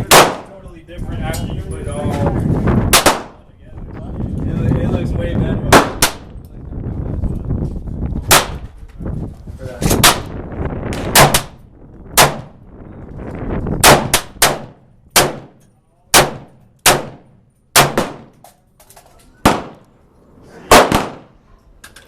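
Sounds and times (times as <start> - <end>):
gunshots with ringing tail: 13.8 - 18.3, 19.4 - 19.8, 20.7 - 21.4.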